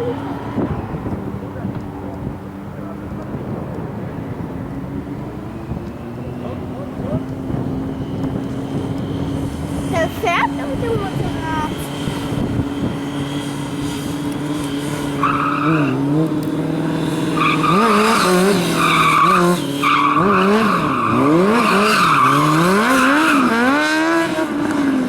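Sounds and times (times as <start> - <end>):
car engine revving: 0.0 - 25.0
tyres squealing: 15.0 - 16.2, 17.2 - 23.8.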